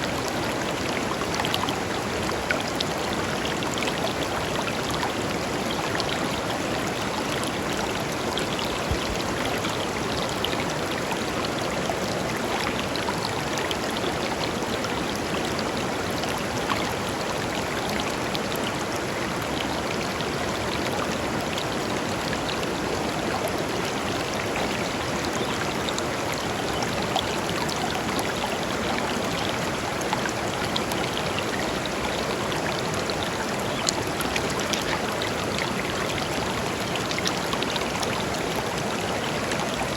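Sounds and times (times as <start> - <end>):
river flowing over stones: 0.0 - 39.9.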